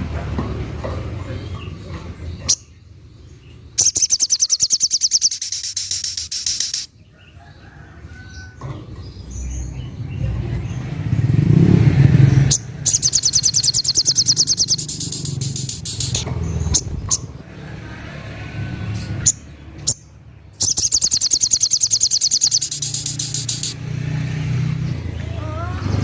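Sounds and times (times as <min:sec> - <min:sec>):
bird high pulsed trill: 0:03.8 - 0:06.9, 0:12.9 - 0:16.2, 0:20.6 - 0:23.8.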